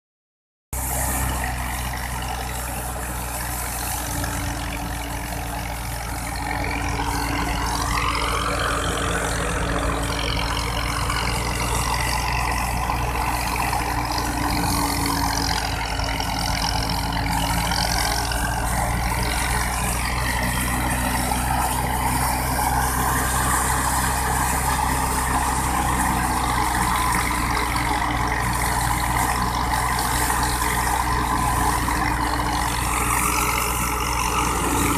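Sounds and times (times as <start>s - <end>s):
engine drone: 0.7s - 34.9s
thresher whirring: 0.8s - 34.9s.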